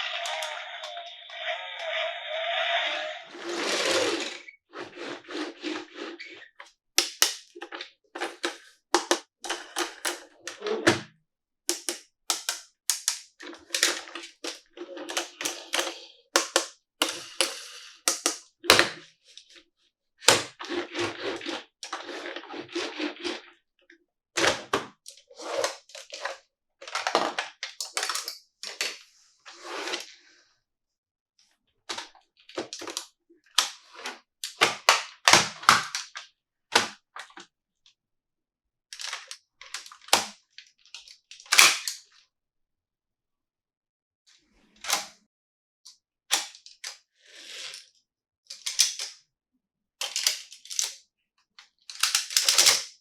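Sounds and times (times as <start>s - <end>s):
hands tapping a plastic toy: 11.7s - 13.2s, 15.2s - 18.5s.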